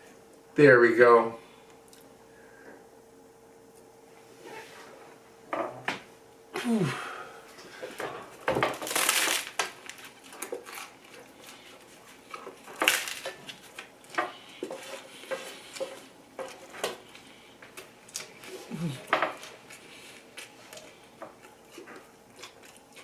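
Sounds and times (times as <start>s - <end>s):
chewing food: 10.0s - 23.0s.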